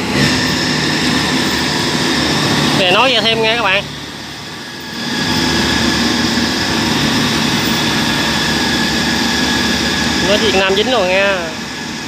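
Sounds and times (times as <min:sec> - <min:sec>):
harvester engine running at high throttle: 0:00.0 - 0:12.0.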